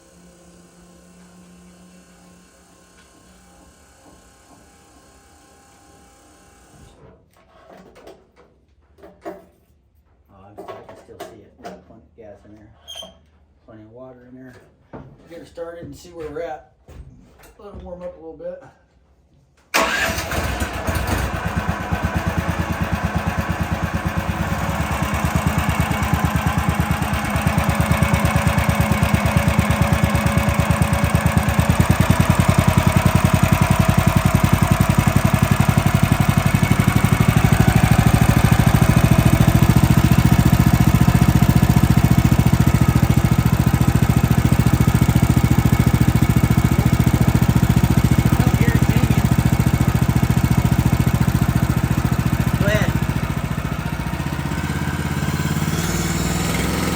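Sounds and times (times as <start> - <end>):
small gasoline engine running: 19.8 - 56.9.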